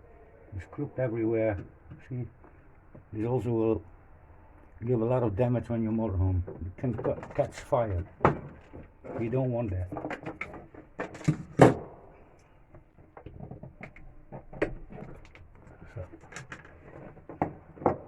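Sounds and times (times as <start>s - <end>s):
knocks: 6.5s - 9.3s
tools clicking and clunking: 6.5s - 18.0s.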